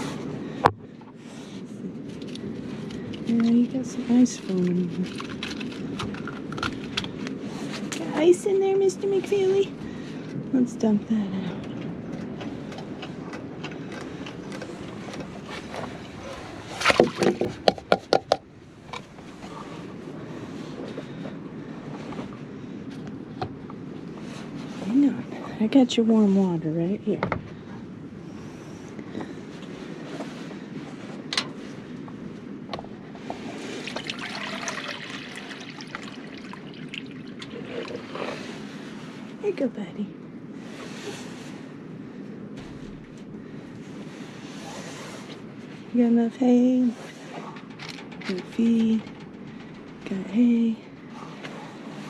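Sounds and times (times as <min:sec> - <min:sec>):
steady background hiss: 0:06.6 - 0:13.0
water pouring into bowl: 0:33.8 - 0:38.0.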